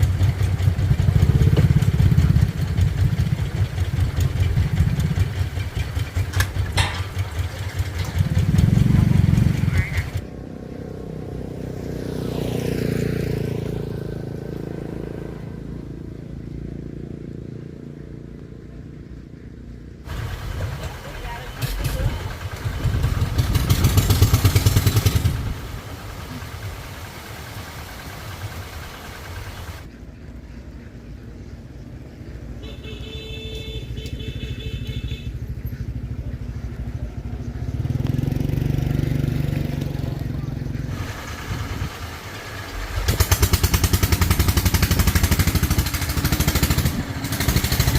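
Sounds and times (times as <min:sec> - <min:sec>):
vehicle engine running: 0:00.0 - 0:11.2, 0:17.8 - 0:47.9
vehicle passing by: 0:07.8 - 0:32.6, 0:35.3 - 0:47.9.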